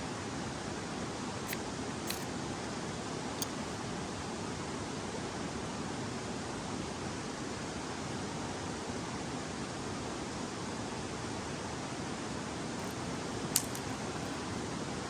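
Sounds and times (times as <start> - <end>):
short faint clicks: 1.5 - 2.3.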